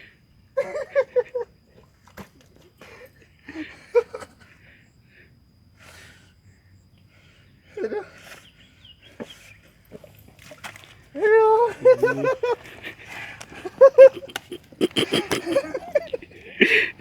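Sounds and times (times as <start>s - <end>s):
breathy exhalations: 12.6s - 17.0s
person straining vocally: 13.9s - 17.0s.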